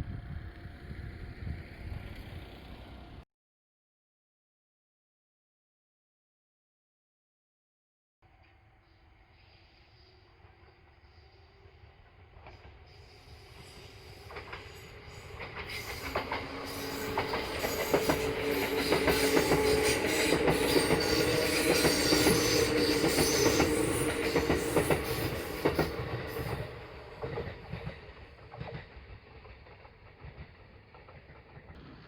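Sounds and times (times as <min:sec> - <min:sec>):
steady train tone: 0:08.3 - 0:32.0
train wheels clicking over rail joints: 0:13.8 - 0:32.0.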